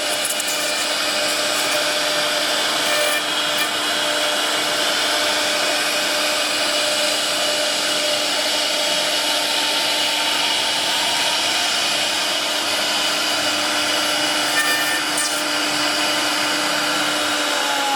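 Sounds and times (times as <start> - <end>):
wood router whining: 0.0 - 17.9.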